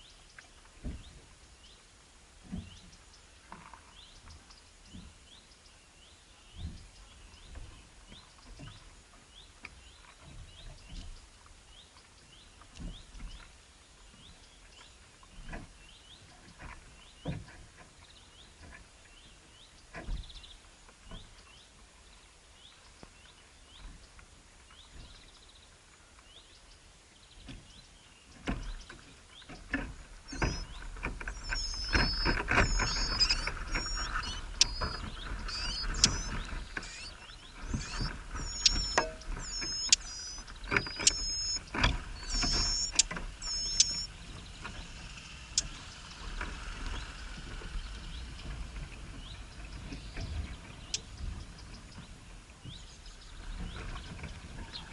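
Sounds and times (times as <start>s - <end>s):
small bird chirping: 30.3s - 46.1s, 50.8s - 51.6s.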